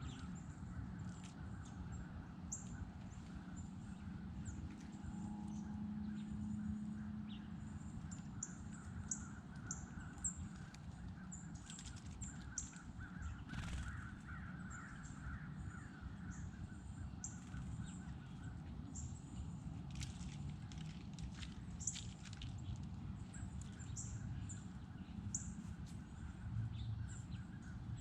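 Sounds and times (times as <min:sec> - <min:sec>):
birds chirping: 0:07.3 - 0:20.8.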